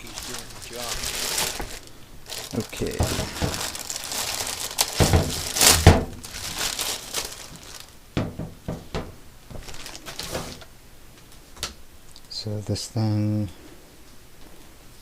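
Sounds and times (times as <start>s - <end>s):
rustling and crinkling handling: 0.0s - 11.4s
heavy knocks: 2.9s - 3.7s, 5.0s - 6.2s, 8.2s - 9.2s.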